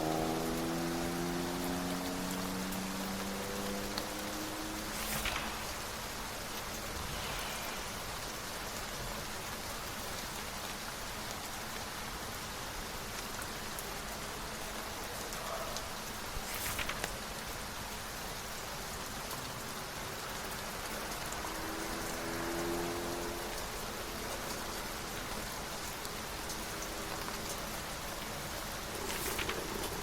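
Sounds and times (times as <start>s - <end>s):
steady rain falling: 0.0s - 30.0s
papery rustles: 4.7s - 8.2s, 16.2s - 17.4s, 28.9s - 30.0s.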